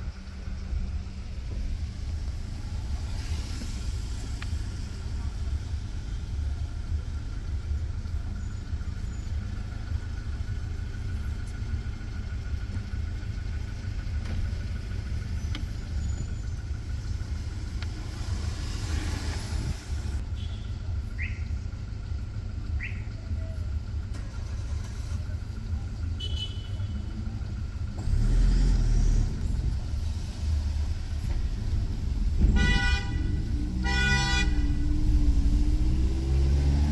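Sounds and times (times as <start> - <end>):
traffic rumble: 0.0 - 36.9
vehicle passing: 17.0 - 20.2.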